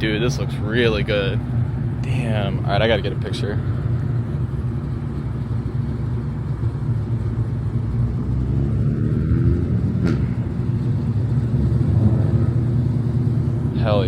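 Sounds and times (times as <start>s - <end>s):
car engine running: 0.0s - 14.0s
road rumble: 0.0s - 14.0s.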